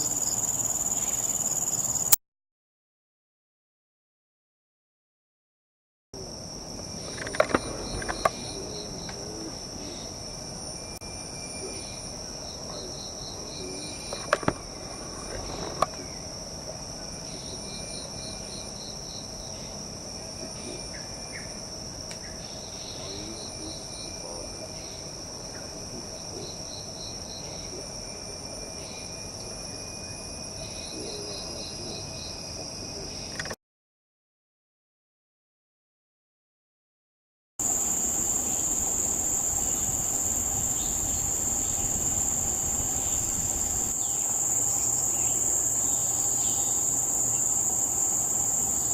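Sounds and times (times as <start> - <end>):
high-pitched insect drone: 0.0 - 2.2, 6.2 - 33.6, 37.6 - 48.9
rapid insect ticks: 0.0 - 2.2, 6.2 - 29.6, 37.6 - 48.9.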